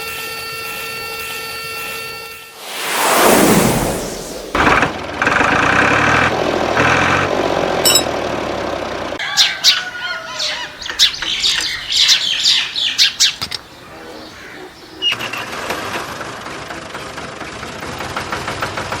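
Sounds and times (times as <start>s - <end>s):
pulsing buzz: 2.5s - 5.4s.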